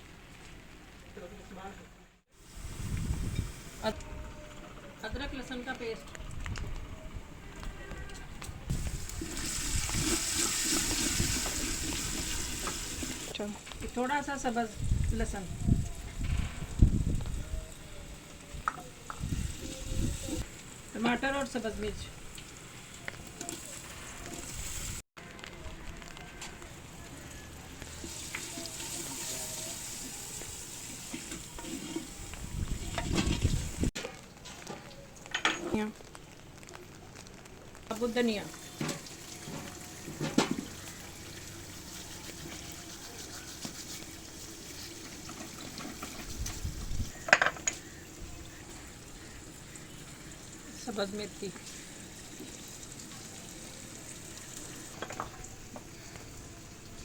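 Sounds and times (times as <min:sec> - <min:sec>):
paste sizzling in hot oil: 0:08.7 - 0:14.7, 0:26.6 - 0:33.0, 0:37.9 - 0:57.0
spoon stirring and scraping: 0:31.1 - 0:32.2.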